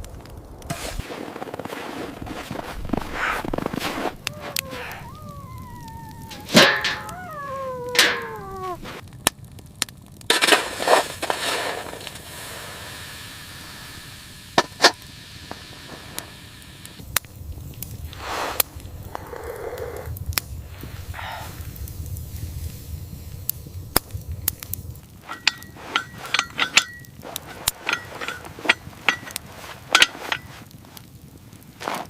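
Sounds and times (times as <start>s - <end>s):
sharp cracks and snaps: 0.0s - 12.4s, 14.6s - 22.6s, 23.3s - 32.0s
animal whining cries: 4.2s - 9.0s.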